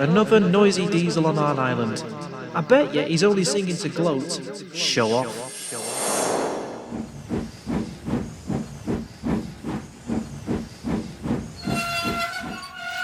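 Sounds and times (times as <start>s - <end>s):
steam locomotive chuffing: 6.8s - 12.7s.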